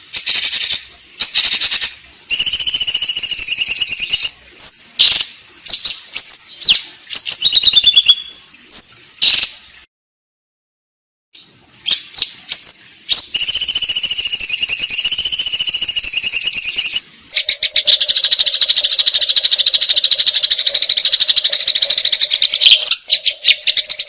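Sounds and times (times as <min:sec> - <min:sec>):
sparrows chattering: 0:12.2 - 0:24.0.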